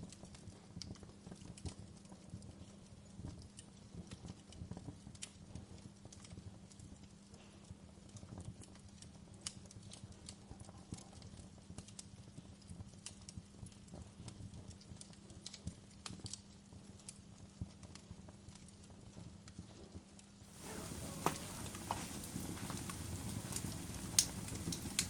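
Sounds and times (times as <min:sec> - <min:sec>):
low rumble of burning: 0:00.0 - 0:25.0
campfire crackling: 0:08.6 - 0:17.2, 0:20.5 - 0:25.0.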